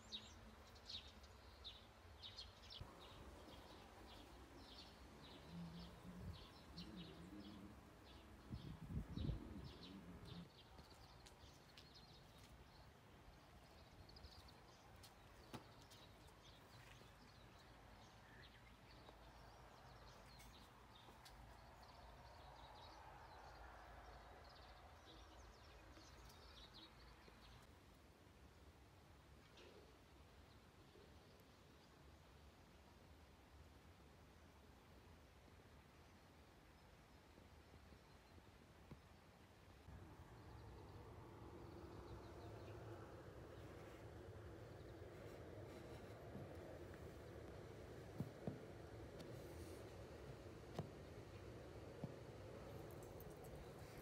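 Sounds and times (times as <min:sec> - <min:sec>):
small birds chirping: 0:40.1 - 0:54.0.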